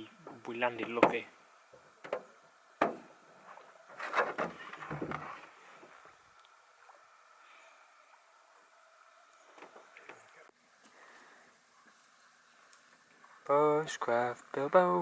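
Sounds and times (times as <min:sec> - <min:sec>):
faint water: 0:00.0 - 0:15.0
canoe knocks: 0:02.0 - 0:03.1, 0:04.0 - 0:05.4.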